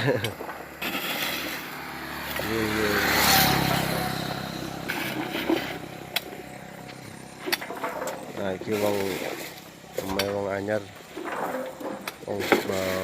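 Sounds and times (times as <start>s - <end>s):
vehicle engine revving: 0.8s - 10.0s.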